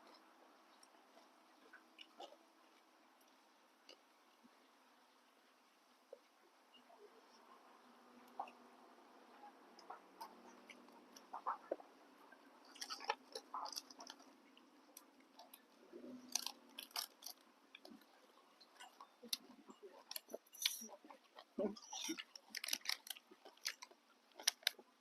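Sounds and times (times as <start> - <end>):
person chewing: 12.6 - 24.8.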